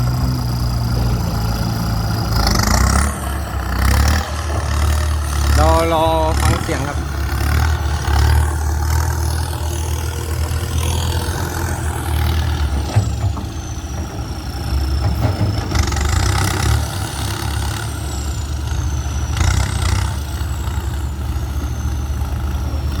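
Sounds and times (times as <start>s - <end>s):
tractor diesel engine rumbling: 0.0s - 23.0s.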